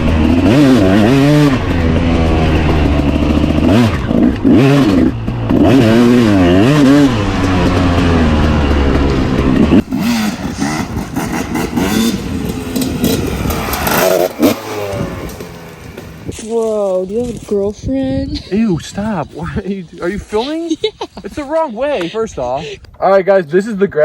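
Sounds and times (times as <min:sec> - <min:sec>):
dirt bike engine revving: 0:00.0 - 0:17.6.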